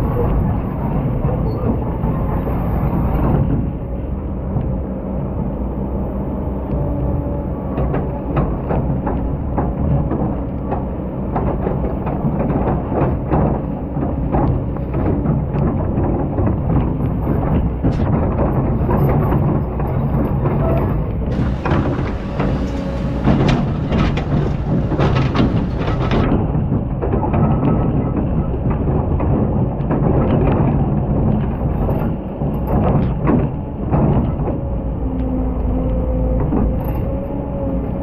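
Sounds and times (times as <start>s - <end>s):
excavator engine running: 19.8s - 26.5s
short clicks and knocks: 21.3s - 26.3s.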